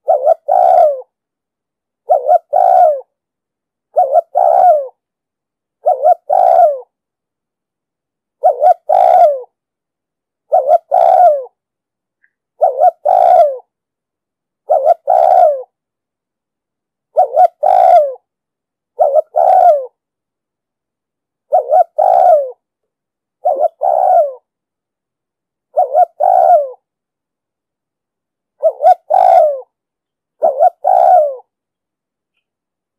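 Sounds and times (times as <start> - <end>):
dove cooing: 0.0 - 1.2, 2.0 - 3.1, 3.9 - 5.0, 5.8 - 7.0, 8.4 - 9.6, 10.5 - 11.6, 12.6 - 13.7, 14.6 - 15.8, 17.1 - 18.3, 19.0 - 20.0, 21.5 - 22.6, 23.4 - 24.5, 25.7 - 26.9, 28.6 - 29.8, 30.4 - 31.5.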